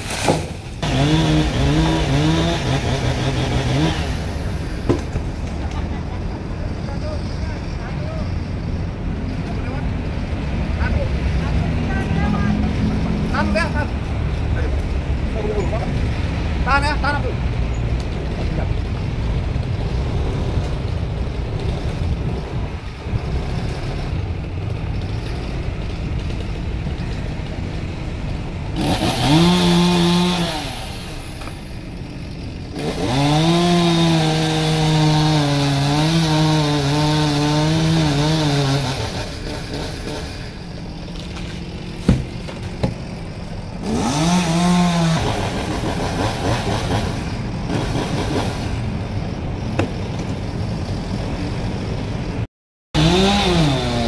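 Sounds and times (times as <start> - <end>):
chainsaw revving: 0.8 - 5.0, 19.7 - 26.6, 28.6 - 48.9, 53.0 - 54.0.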